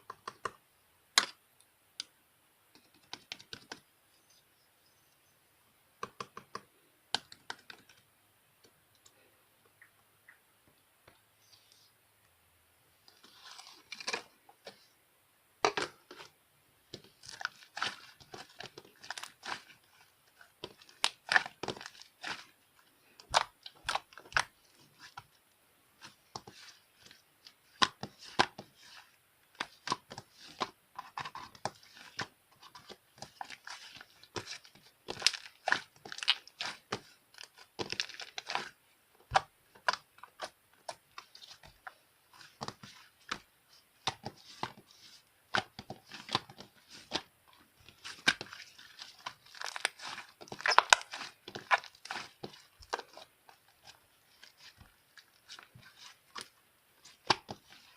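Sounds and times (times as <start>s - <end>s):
slime crackling and popping: 47.9s - 54.9s.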